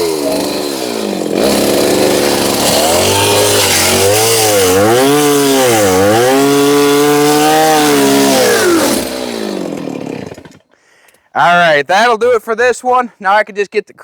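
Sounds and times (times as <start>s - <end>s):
chainsaw cutting: 0.0s - 10.7s.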